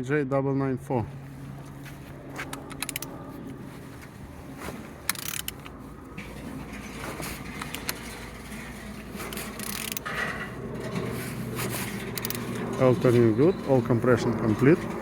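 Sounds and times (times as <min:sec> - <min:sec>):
mechanical scraping and clicks: 0:02.4 - 0:04.2, 0:05.0 - 0:15.0
engine turned over by hand: 0:03.9 - 0:15.0.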